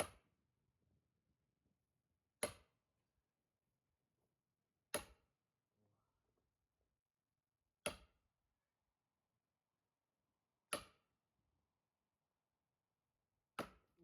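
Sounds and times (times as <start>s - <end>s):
axe splitting log: 13.6s - 14.0s.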